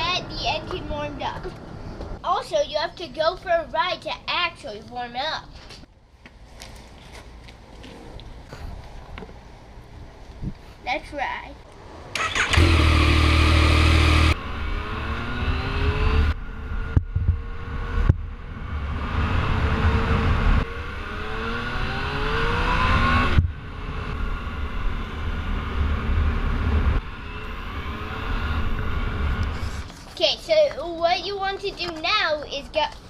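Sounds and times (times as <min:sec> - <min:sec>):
motorcycle engine revving: 0:12.1 - 0:29.9.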